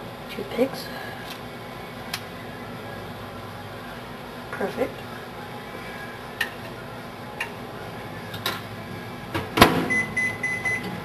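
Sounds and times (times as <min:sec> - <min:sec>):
microwave steady beep: 0:09.8 - 0:11.0
microwave keypad clicks and beeps: 0:09.9 - 0:10.9.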